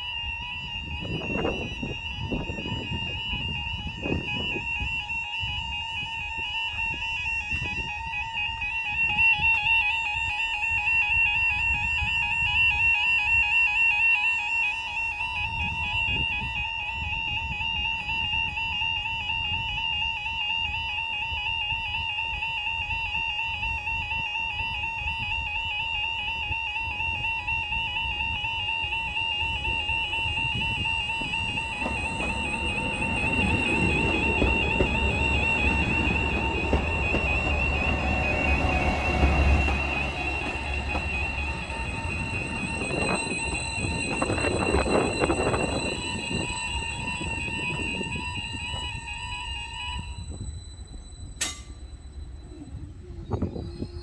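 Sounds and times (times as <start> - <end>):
level crossing alarms warbling: 29.0 - 51.6.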